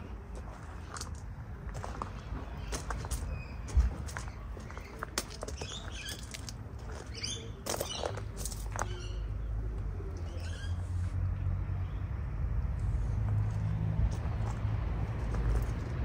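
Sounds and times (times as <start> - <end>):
small birds chirping: 2.5 - 11.1.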